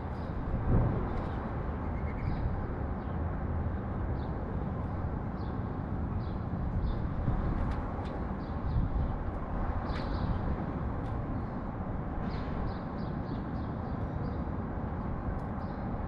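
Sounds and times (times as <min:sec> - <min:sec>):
low rumble of city traffic: 0:00.0 - 0:16.0
sparrows chirping: 0:01.8 - 0:03.2.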